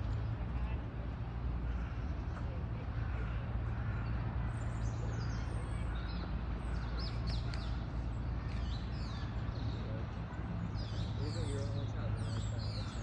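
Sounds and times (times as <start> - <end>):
small birds chirping: 3.8 - 13.0.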